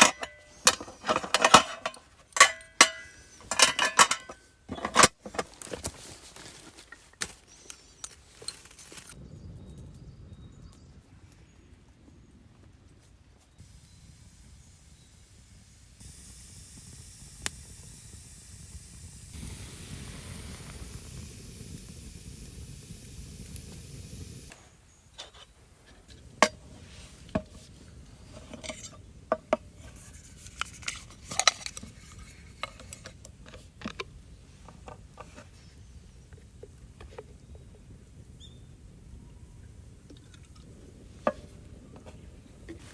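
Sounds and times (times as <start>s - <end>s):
cookware and utensils clinking: 0.0s - 5.7s, 26.1s - 29.8s
steady sizzling hiss: 0.0s - 9.2s, 13.4s - 42.9s.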